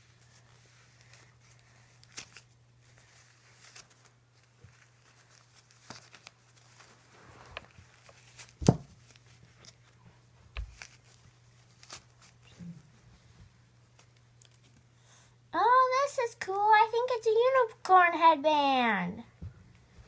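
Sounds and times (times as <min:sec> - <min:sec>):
wrapping paper tearing and rustling: 0:00.0 - 0:10.0, 0:10.6 - 0:12.8, 0:13.9 - 0:14.8
faint low hum: 0:00.0 - 0:20.0.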